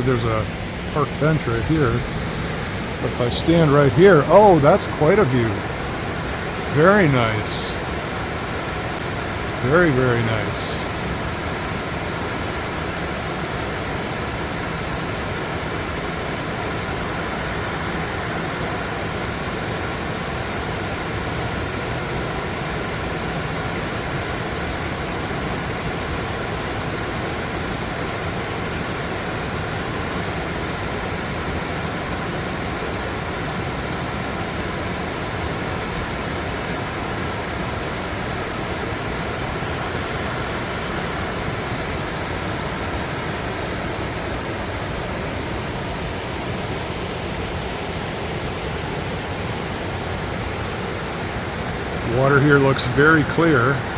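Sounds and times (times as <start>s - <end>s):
waterfall rushing: 0.0s - 11.1s, 48.4s - 53.9s.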